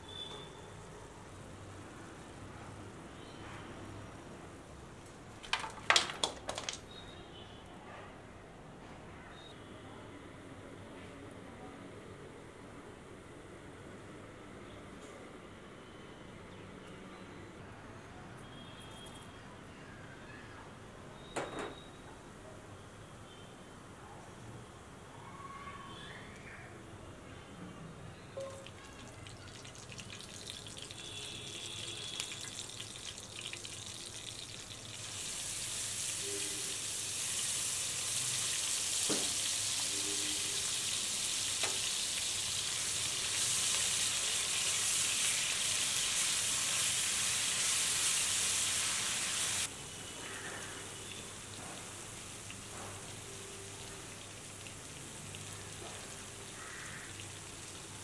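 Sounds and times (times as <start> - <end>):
food sizzling in hot oil: 28.4 - 58.0.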